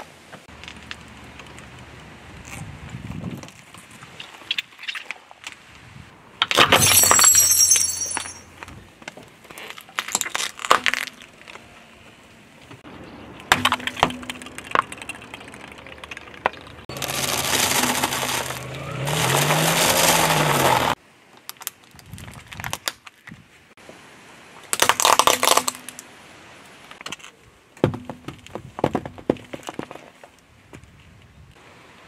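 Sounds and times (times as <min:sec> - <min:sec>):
tyre crushing objects crackling: 0:16.9 - 0:21.0, 0:24.8 - 0:25.9.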